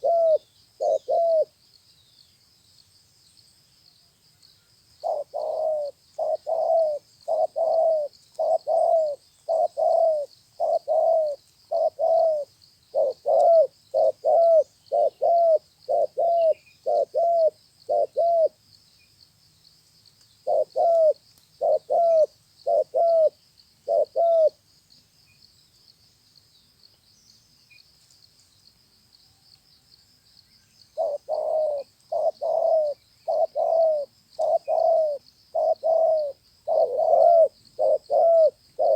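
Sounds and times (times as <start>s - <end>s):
dove cooing: 0.0s - 1.5s, 5.0s - 18.6s, 20.4s - 24.6s, 31.0s - 38.9s.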